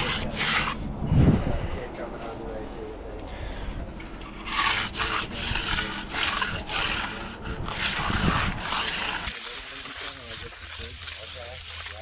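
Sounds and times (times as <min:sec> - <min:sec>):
stiff broom scraping concrete: 0:00.0 - 0:00.9, 0:03.6 - 0:12.0.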